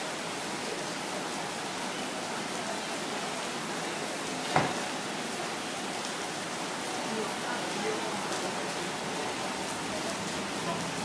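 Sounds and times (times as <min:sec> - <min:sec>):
rain on wet pavement: 0:00.0 - 0:11.0.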